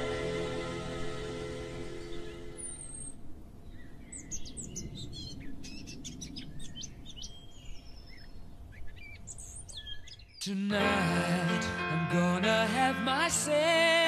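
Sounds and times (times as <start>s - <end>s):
small birds chirping: 1.8s - 10.6s.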